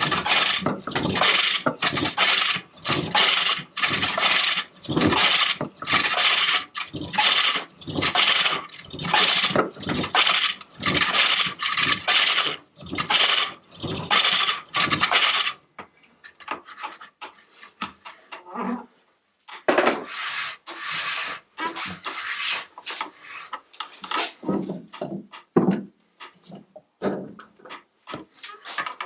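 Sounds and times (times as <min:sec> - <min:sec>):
hook tool rasping on wood: 0:00.0 - 0:15.3.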